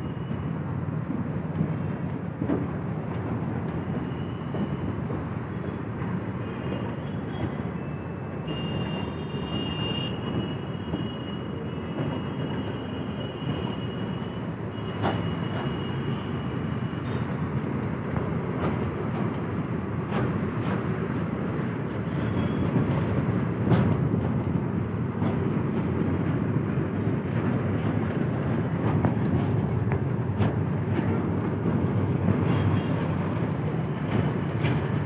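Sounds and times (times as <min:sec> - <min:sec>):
freight train wheels rumbling: 0:00.0 - 0:35.0.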